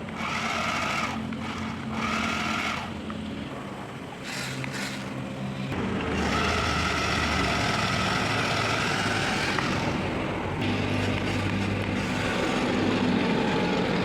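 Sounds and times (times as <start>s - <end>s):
toy electric motor whining: 0.2s - 3.0s, 4.2s - 5.2s, 6.1s - 10.0s, 10.9s - 12.8s.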